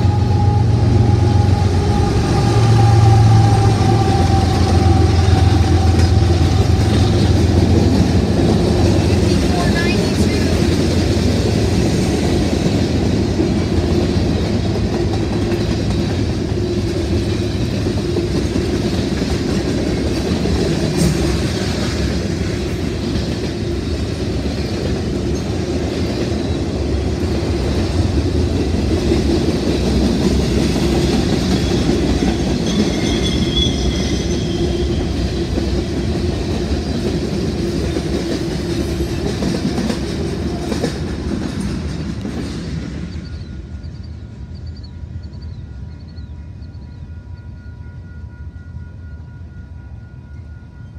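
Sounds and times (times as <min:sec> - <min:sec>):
train wheels clicking over rail joints: 0:00.1 - 0:45.4
high wheel squeal: 0:31.4 - 0:35.2.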